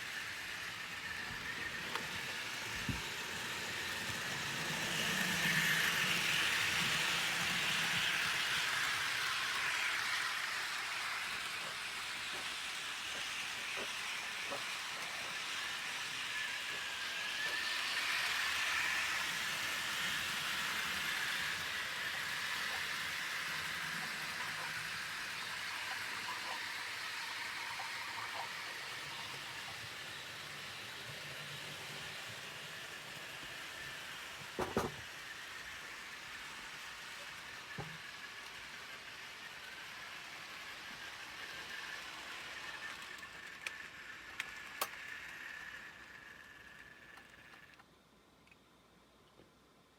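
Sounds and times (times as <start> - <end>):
model train motor humming: 0.0 - 47.9
wheels rolling on track: 0.0 - 47.9.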